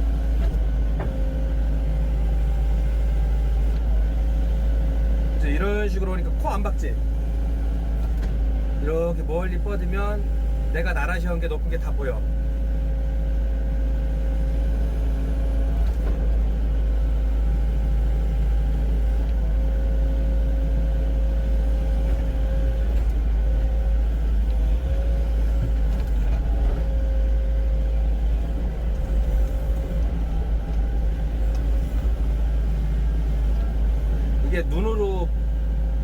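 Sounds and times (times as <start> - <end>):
excavator engine rumble: 0.0 - 36.0
hydraulic whine: 0.0 - 36.0.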